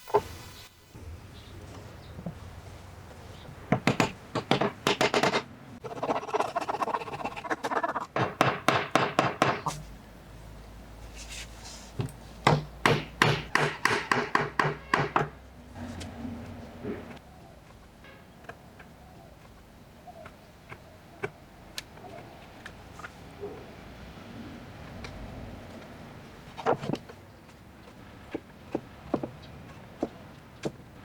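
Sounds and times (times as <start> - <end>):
scraping on wood: 3.8 - 9.9.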